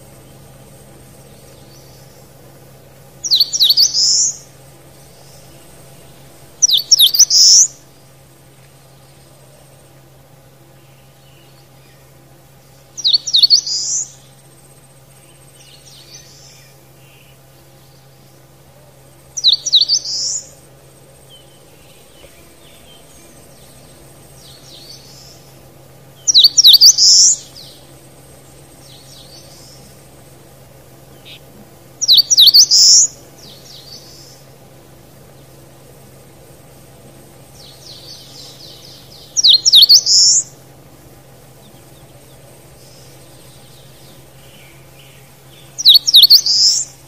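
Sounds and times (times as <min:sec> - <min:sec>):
songbird singing high phrases: 0:00.0 - 0:08.2, 0:10.7 - 0:18.6, 0:19.2 - 0:35.8, 0:37.3 - 0:47.0
faint bird calls: 0:00.0 - 0:47.0.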